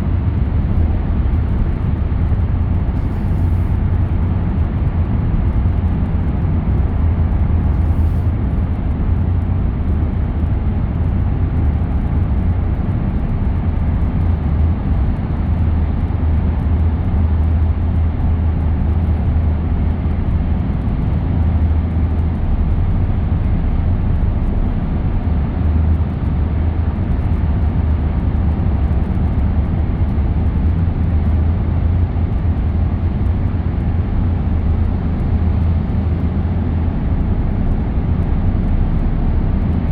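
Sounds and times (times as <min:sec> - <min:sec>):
car driving road noise: 0:00.0 - 0:39.9.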